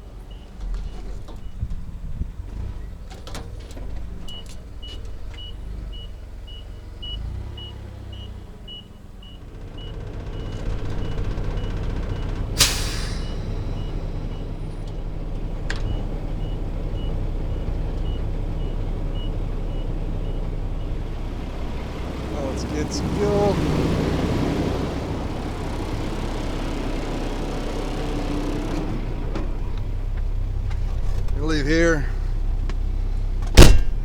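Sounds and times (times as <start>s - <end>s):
truck diesel engine running: 0.0s - 34.0s
air brake hiss: 12.6s - 14.3s.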